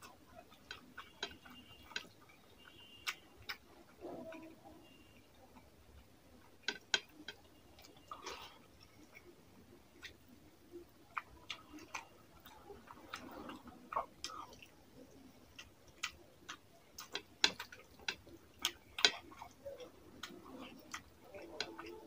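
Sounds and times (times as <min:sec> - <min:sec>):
chewing clicks: 0:00.0 - 0:04.5, 0:11.1 - 0:22.0.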